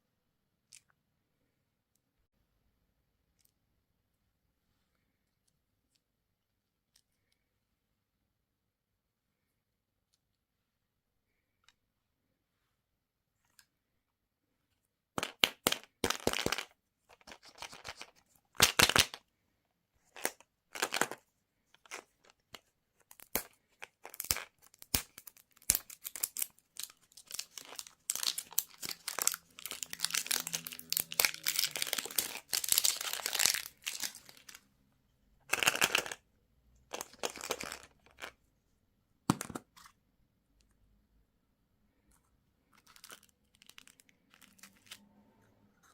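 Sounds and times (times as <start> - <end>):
candy wrappers crinkling: 20.0 - 34.6, 35.4 - 36.2, 36.9 - 38.4, 42.6 - 45.0.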